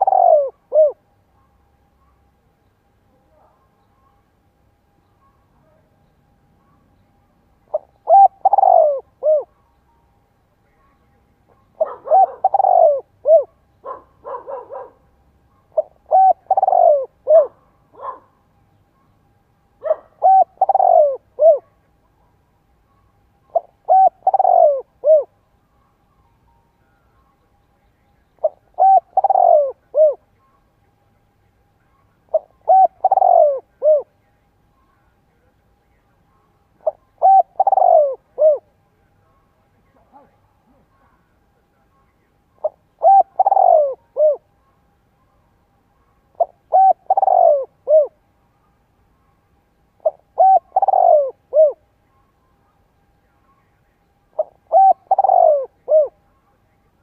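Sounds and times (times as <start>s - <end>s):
dove cooing: 0.0s - 1.1s, 7.7s - 9.7s, 11.5s - 18.4s, 19.8s - 21.9s, 23.5s - 25.4s, 28.4s - 30.3s, 32.3s - 34.2s, 36.8s - 38.8s, 42.6s - 44.5s, 46.3s - 48.2s, 50.0s - 51.9s, 54.3s - 56.2s.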